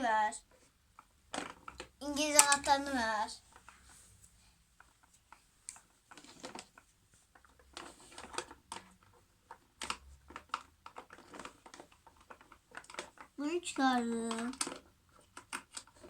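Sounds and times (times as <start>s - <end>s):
small hard parts handled: 7.4s - 13.4s.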